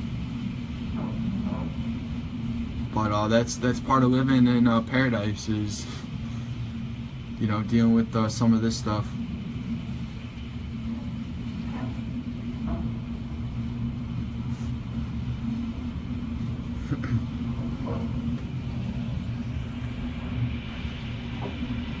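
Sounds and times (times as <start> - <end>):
muffled wind and rain rumble: 0.0 - 22.0.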